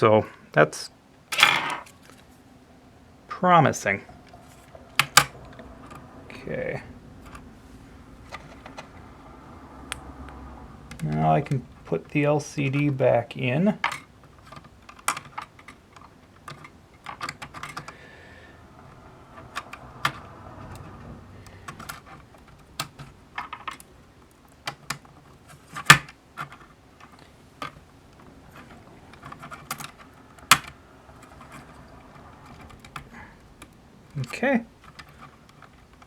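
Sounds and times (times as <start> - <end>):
plastic pieces clicking and tapping: 4.7 - 6.0, 13.8 - 18.0, 19.3 - 36.0.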